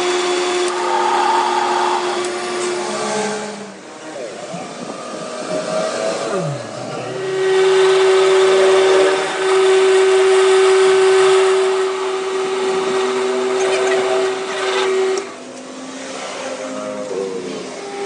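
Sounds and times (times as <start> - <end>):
power tool whining under load: 0.0 - 18.0.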